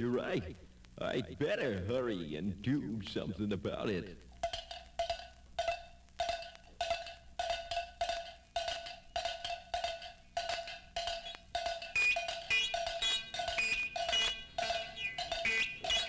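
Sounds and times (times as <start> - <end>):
wood block clip-clop: 4.4 - 16.0
high ringing notes: 4.5 - 16.0.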